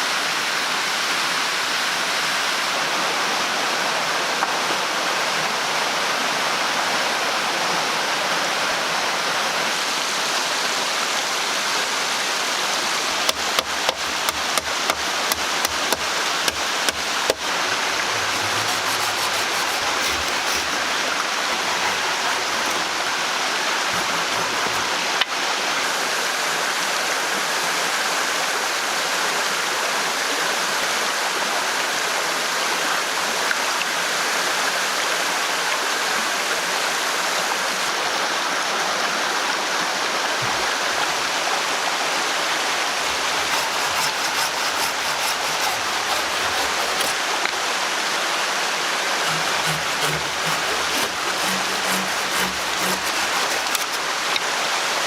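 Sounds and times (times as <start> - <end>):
flowing water rushing: 0.0 - 30.2, 31.4 - 55.0.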